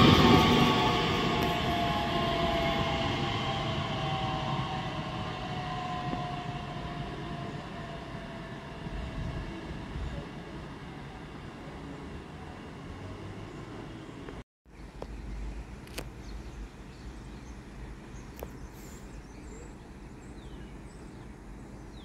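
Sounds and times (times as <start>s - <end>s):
train motor whine: 0.0s - 14.4s
train running and wheel noise: 0.0s - 14.4s.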